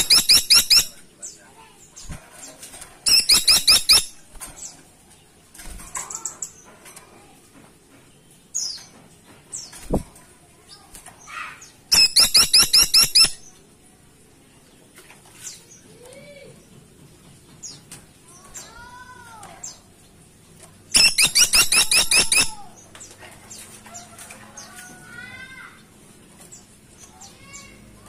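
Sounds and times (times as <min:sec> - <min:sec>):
woodpecker rapid sharp calls: 0:00.0 - 0:01.0, 0:03.1 - 0:04.3, 0:11.9 - 0:13.5, 0:20.9 - 0:22.7
faint bird whistles and calls: 0:11.3 - 0:13.4, 0:20.9 - 0:22.8.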